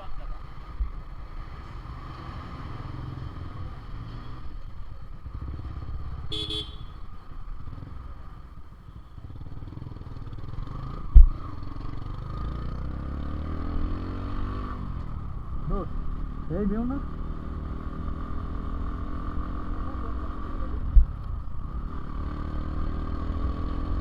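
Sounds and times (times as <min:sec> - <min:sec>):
motorcycle engine running: 0:00.0 - 0:24.0
vehicle horn beeping: 0:06.3 - 0:07.0.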